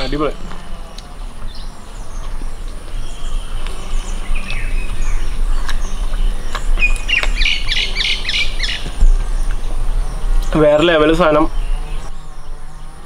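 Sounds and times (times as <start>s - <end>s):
wild birds calling: 0.0s - 13.0s
bird giving rapid repeated calls: 1.5s - 12.1s.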